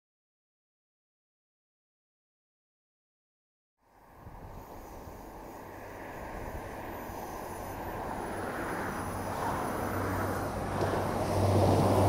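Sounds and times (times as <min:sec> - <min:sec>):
diesel train engine hum: 0:03.8 - 0:12.0.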